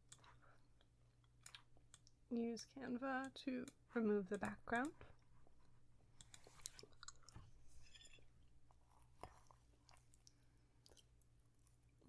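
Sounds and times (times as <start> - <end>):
person chewing food: 0.0 - 2.2, 5.2 - 12.0.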